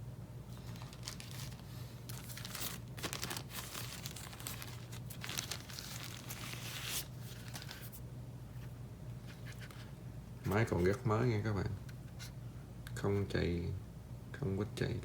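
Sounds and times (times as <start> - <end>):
steady low hum: 0.0 - 15.0
plastic packaging crinkling: 0.5 - 8.0.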